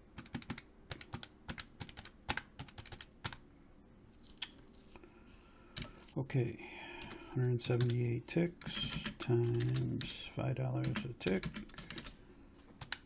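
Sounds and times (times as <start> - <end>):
typing on computer keyboard: 0.2 - 3.4, 7.8 - 8.0, 8.6 - 10.2, 10.8 - 12.2, 12.8 - 13.0.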